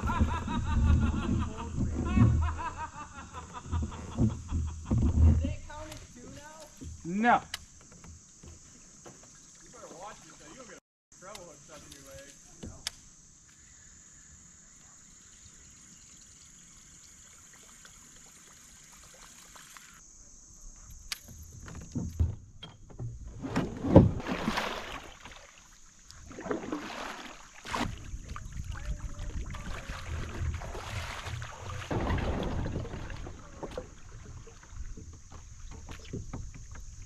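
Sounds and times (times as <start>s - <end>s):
faint high hiss: 5.4s - 21.5s
water splashing against paddle: 23.4s - 37.0s.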